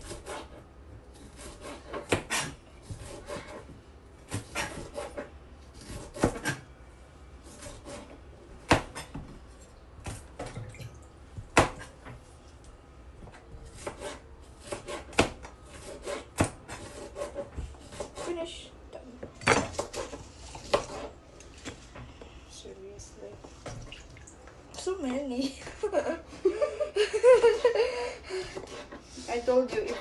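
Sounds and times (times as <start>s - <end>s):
knife chopping on cutting board: 1.2s - 3.7s, 4.3s - 6.6s, 7.5s - 9.3s, 11.5s - 11.9s, 13.2s - 18.3s.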